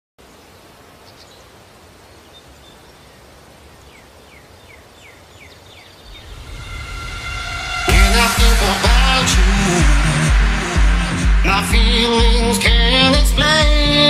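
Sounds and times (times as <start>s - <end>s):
steady background hiss: 0.2s - 6.4s
low rumble: 6.1s - 13.5s.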